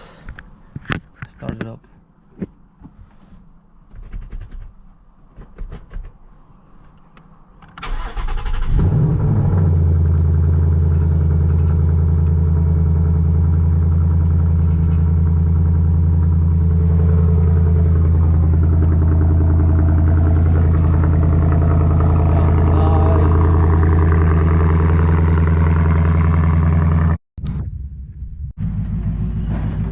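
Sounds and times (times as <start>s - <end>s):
engine starter cranking: 7.6s - 9.1s
car engine idling: 7.8s - 27.2s.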